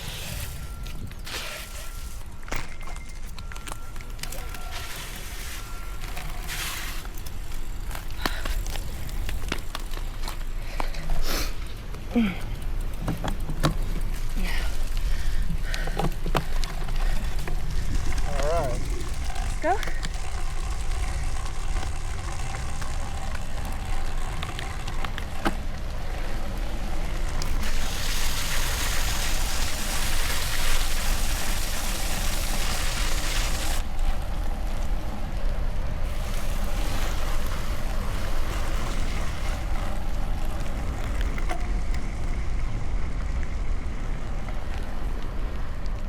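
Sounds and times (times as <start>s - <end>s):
wind buffeting microphone: 12.9s - 28.6s
hiss of wet road spray: 27.5s - 33.8s.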